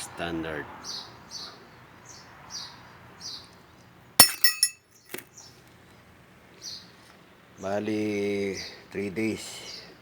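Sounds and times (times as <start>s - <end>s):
metal parts clinking: 4.2s - 4.8s.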